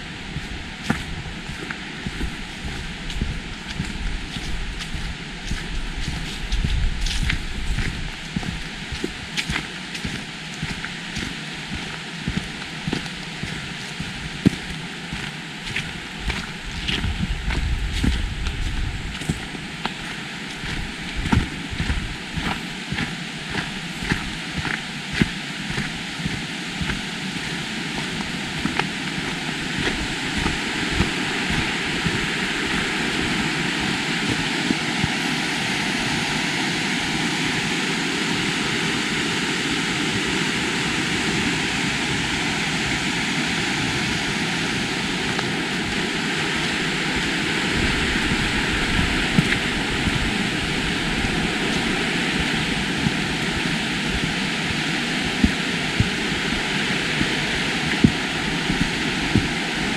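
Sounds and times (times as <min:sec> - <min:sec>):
river water rushing over rocks: 0:00.0 - 0:59.9.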